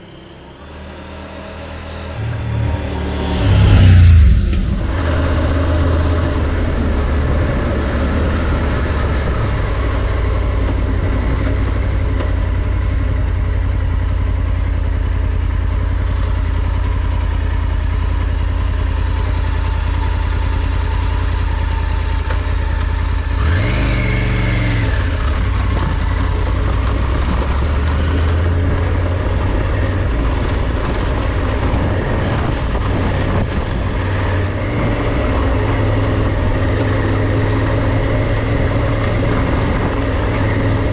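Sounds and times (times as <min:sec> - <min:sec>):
steady rushing noise: 0:00.0 - 0:05.3
motorcycle engine running: 0:00.0 - 0:40.9.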